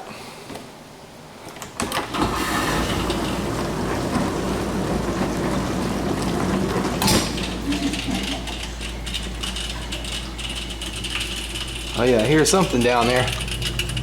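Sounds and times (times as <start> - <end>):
dishwasher clicks: 1.6 - 14.0
drain pump running: 1.9 - 14.0
water rushing: 2.2 - 10.4.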